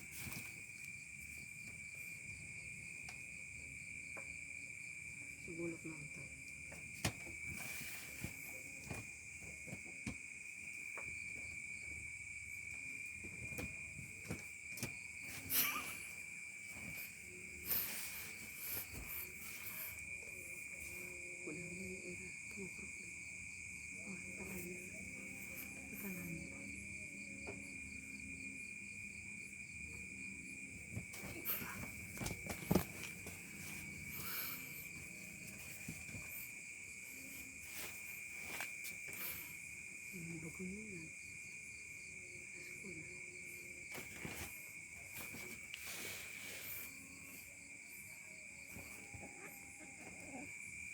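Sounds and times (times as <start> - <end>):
crickets chirping: 0.0 - 50.9
cats growling and yowling: 48.9 - 50.6.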